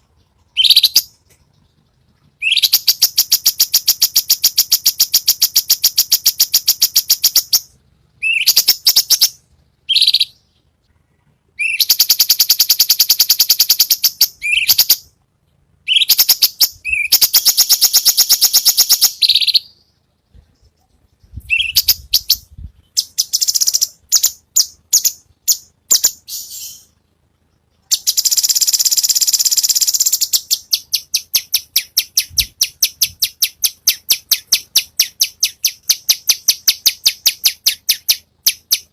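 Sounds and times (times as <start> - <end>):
bird calling in harsh rapid trills: 21.5 - 27.0, 27.9 - 38.9.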